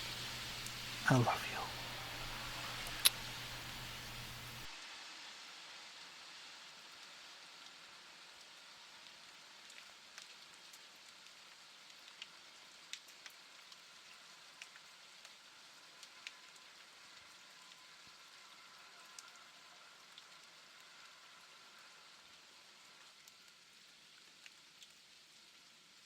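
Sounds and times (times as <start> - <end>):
raindrops ticking: 0.0 - 4.7
faint rain falling: 0.0 - 26.0.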